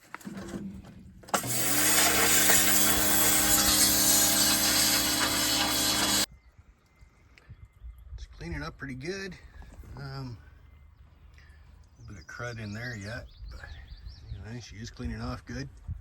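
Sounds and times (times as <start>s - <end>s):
motor and pump humming: 1.4s - 6.3s
pressure washer spraying: 1.4s - 6.3s.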